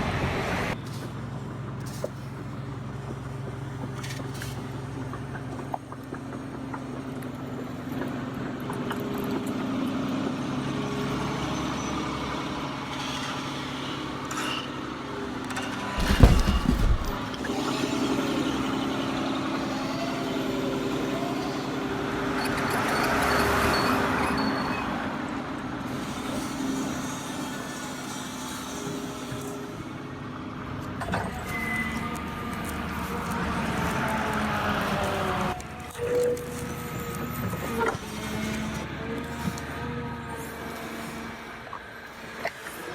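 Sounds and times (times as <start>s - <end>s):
low rumble and knock: 16.0s - 17.3s.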